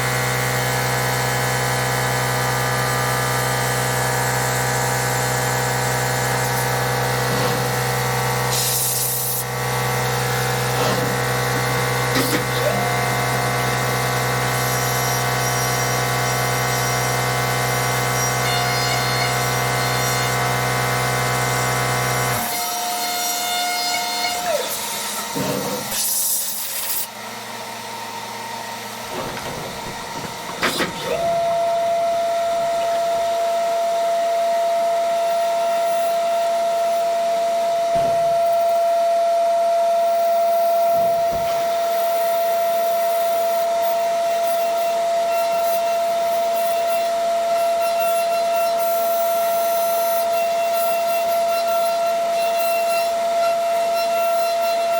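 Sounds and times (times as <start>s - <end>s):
milling machine whine: 0.0s - 47.7s.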